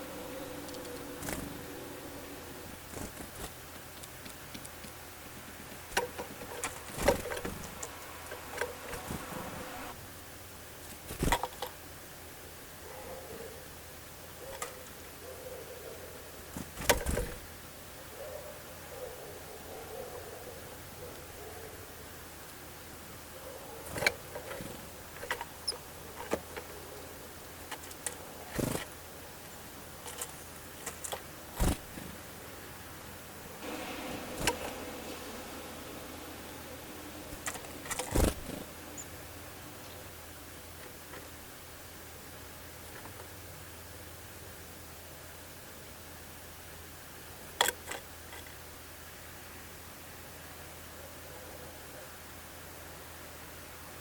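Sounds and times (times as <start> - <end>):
wing flutters: 0.0 - 4.8, 5.8 - 10.0, 16.5 - 17.5, 27.6 - 29.0, 30.1 - 32.3, 33.6 - 40.2
birds tapping and clicking: 0.0 - 9.9, 23.8 - 28.9, 33.6 - 40.2
high bird chirp: 33.6 - 40.2.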